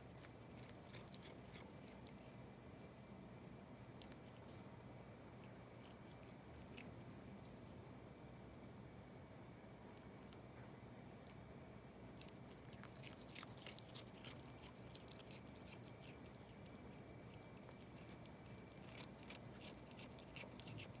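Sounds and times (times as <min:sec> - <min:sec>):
cat chewing leaves: 0:00.0 - 0:03.1, 0:05.2 - 0:08.0, 0:11.2 - 0:21.0.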